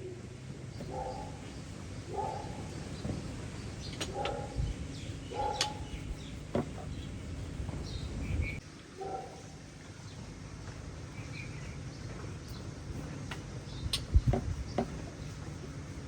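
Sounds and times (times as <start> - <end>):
doves cooing: 0.0 - 8.6.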